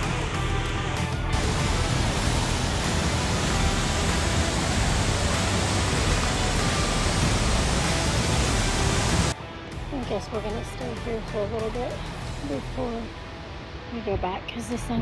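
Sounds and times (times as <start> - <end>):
waterfall roaring: 1.4 - 9.4.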